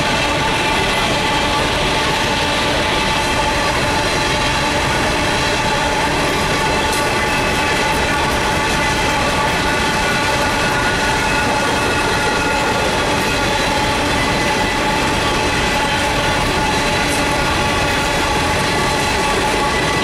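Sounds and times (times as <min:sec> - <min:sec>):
steel wheels rumbling on rails: 0:00.0 - 0:20.0.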